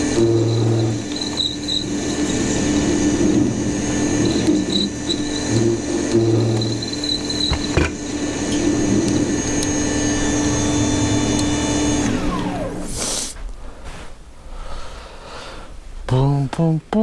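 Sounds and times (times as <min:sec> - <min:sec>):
power tool motor whining: 0:00.0 - 0:13.4
knocks: 0:07.4 - 0:08.0.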